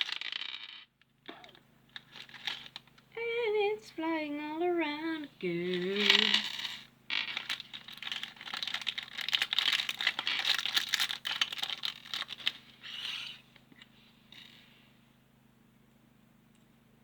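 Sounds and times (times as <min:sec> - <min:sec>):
plastic pieces clattering: 0:00.0 - 0:03.0, 0:05.6 - 0:13.4.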